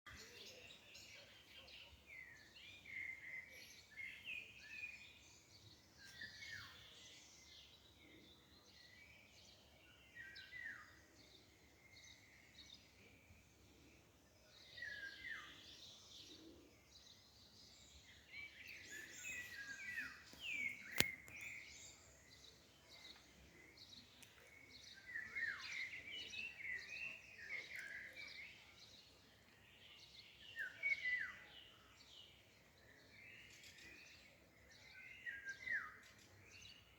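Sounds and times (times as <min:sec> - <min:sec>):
faint outdoor hiss: 0:00.1 - 0:36.9
songbirds chirping and singing: 0:00.1 - 0:36.9
sharp click: 0:20.8 - 0:21.4.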